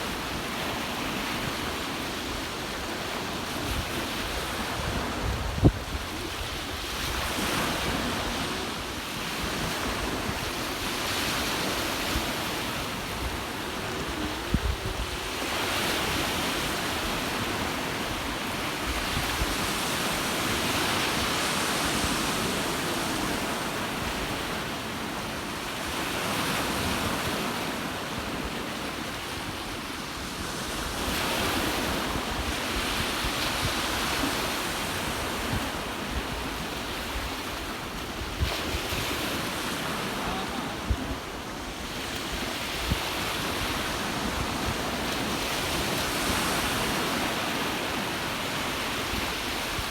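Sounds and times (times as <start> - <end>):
ocean waves washing ashore: 0.0 - 49.9
wind rumbling on microphone: 2.6 - 24.6.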